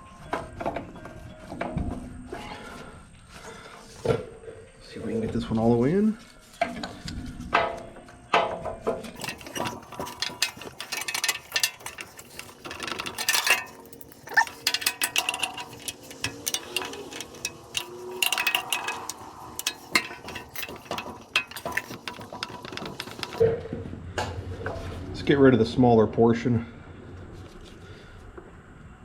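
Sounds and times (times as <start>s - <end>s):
rubber hose squeaking: 9.2s - 23.4s
tools clicking and clinking: 9.2s - 23.4s.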